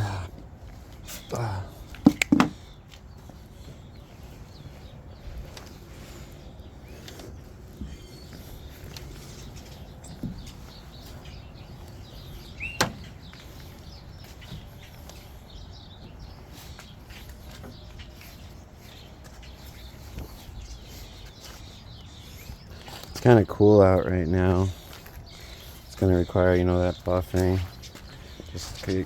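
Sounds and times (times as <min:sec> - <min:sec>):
faint bird chirps: 0:06.4 - 0:23.4.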